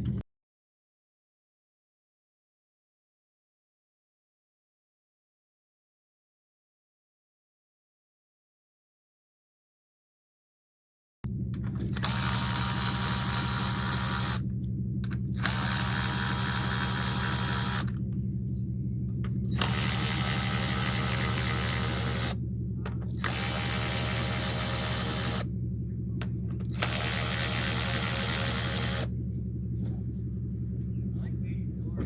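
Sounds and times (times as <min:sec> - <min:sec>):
steady low hum: 0:11.3 - 0:32.0
hand ratchet clicking: 0:15.4 - 0:18.0, 0:23.2 - 0:25.4.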